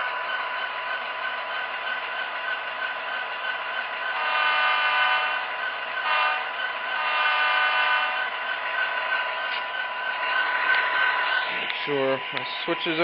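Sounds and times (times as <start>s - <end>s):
steady background hum: 0.0s - 13.0s
simulated locomotive horn blasts: 4.1s - 8.3s.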